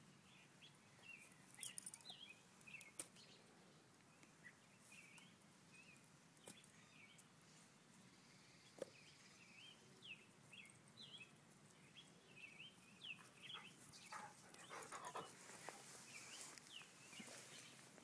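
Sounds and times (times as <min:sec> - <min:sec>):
small bird chirping: 0:00.2 - 0:03.5, 0:04.1 - 0:07.3, 0:08.1 - 0:17.9
rustling: 0:13.8 - 0:18.0.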